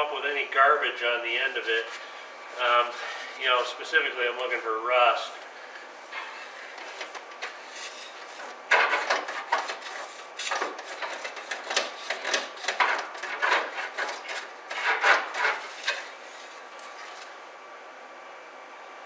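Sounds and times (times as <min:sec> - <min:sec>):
line scraping metal tank bottom: 0:06.1 - 0:16.5.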